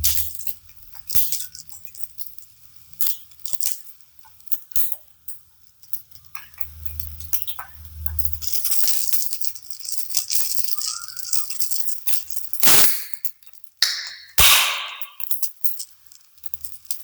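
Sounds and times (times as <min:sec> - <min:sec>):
utensils clicking and clinking: 0:08.7 - 0:12.1.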